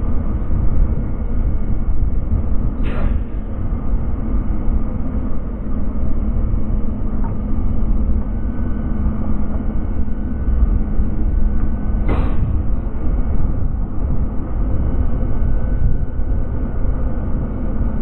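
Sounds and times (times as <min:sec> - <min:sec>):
passenger train rumbling on track: 0:00.0 - 0:18.0.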